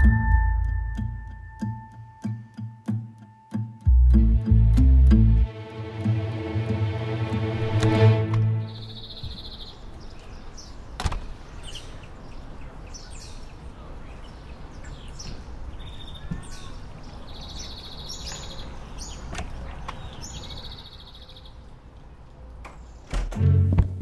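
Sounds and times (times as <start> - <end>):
birds chirping and trilling: 8.6 - 21.8.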